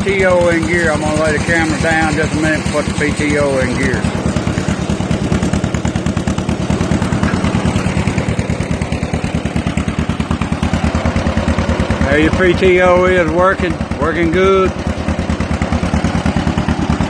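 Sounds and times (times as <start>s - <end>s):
tractor engine popping exhaust: 0.0s - 17.0s.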